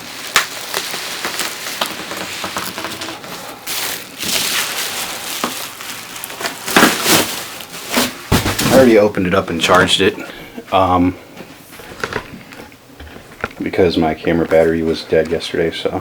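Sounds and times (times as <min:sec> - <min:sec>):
cardboard box rustling: 0:01.3 - 0:09.0.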